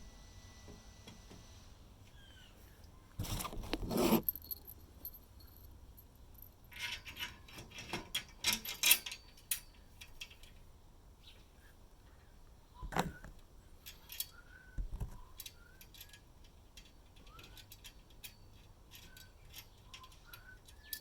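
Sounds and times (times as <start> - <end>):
small hard objects clinking: 4.2 - 6.9.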